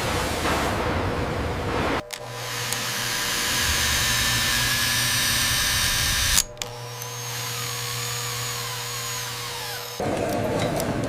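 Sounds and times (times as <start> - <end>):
machine hum with high whine: 0.0 - 10.0
machine motor whirring: 2.0 - 10.3.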